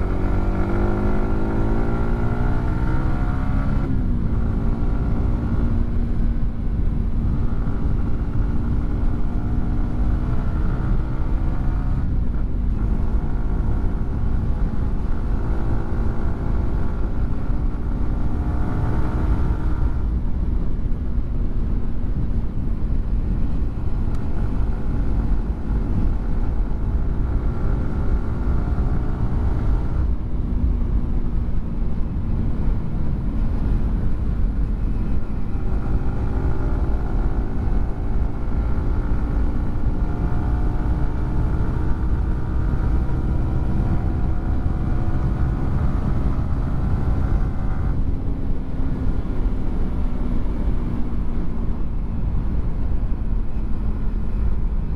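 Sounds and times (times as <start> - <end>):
motorcycle engine shifting gears: 0.0 - 6.1
low wind rumble: 0.0 - 54.9.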